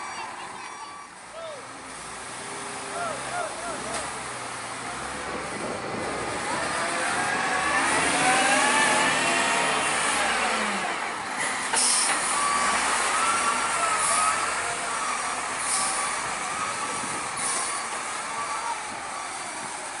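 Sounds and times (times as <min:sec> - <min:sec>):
heavy truck engine whining: 0:00.0 - 0:20.0
air brake hisses: 0:11.7 - 0:12.2, 0:15.6 - 0:16.1.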